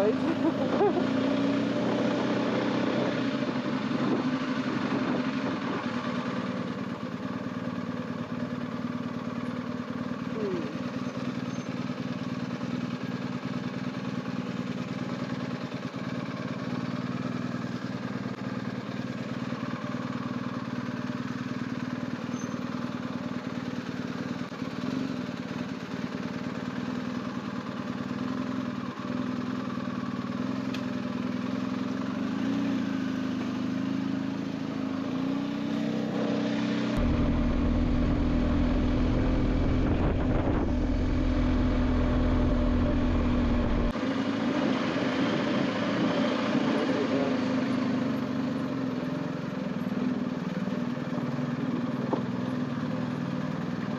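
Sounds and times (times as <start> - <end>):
motorcycle engine running: 0.0 - 53.9
wind rumble on microphone: 37.0 - 43.9.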